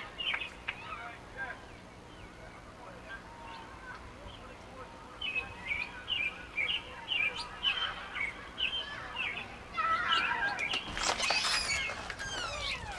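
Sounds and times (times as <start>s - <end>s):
nestling birds chirping: 0.0s - 12.9s
nestlings begging calls: 5.2s - 12.9s.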